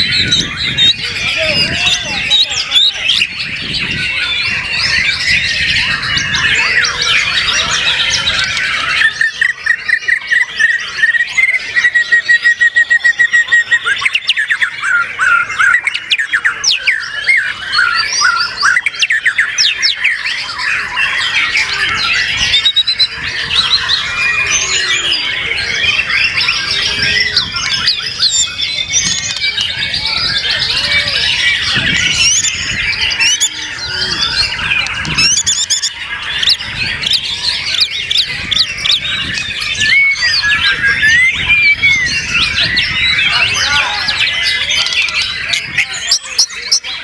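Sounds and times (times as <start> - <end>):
songbirds singing in chorus: 0.0 - 47.0.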